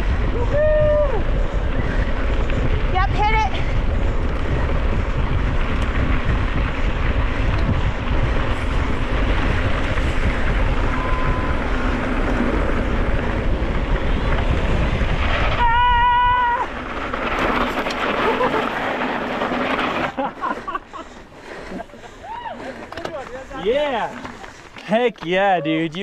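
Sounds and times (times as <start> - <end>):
wind buffeting microphone: 0.0 - 19.9
rushing rumble of bike: 0.0 - 26.0.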